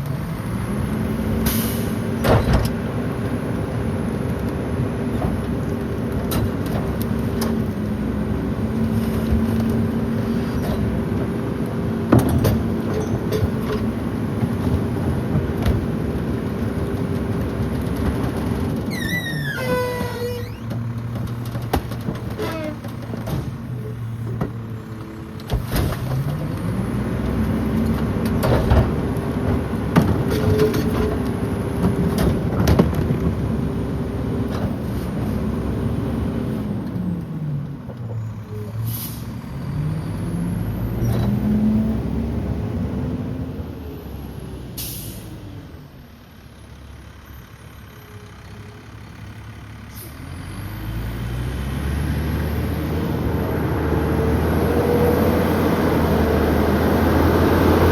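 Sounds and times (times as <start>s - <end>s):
diesel truck engine revving: 23.0s - 46.0s, 48.9s - 57.9s.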